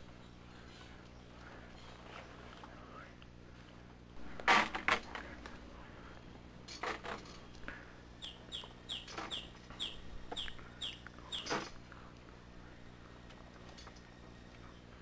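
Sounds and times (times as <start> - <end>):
bird squawking: 8.2 - 11.7.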